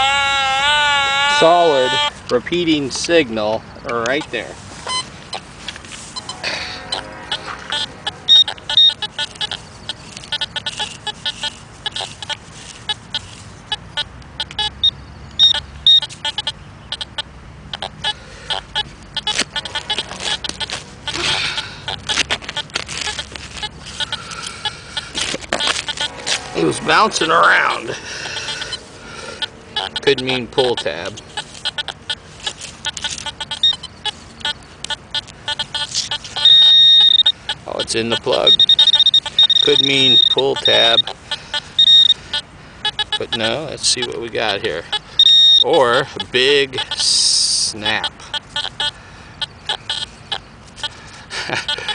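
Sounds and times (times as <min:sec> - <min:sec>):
metal detector beeping: 0:01.3 - 0:05.5, 0:06.1 - 0:51.9
digging in soil: 0:19.3 - 0:28.4
short high electronic beep: 0:35.8 - 0:37.4, 0:38.1 - 0:41.1, 0:41.8 - 0:42.2, 0:45.2 - 0:45.8.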